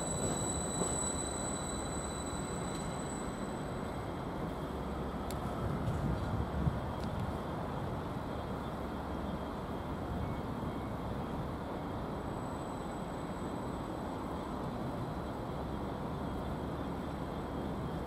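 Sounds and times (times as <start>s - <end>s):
faint high steady tones: 0.0s - 5.3s.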